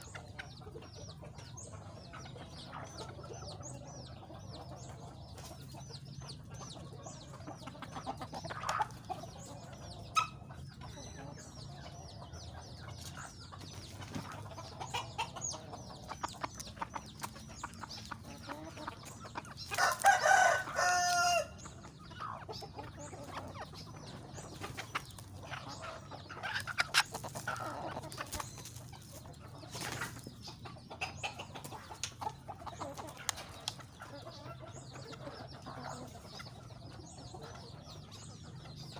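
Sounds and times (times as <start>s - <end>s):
chickens clucking: 0.0s - 38.9s
rooster crowing: 19.8s - 21.6s.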